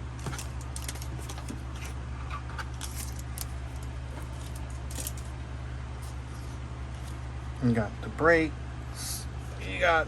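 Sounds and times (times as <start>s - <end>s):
steady low hum: 0.0s - 10.0s
trading cards clicking and rustling: 0.1s - 5.4s.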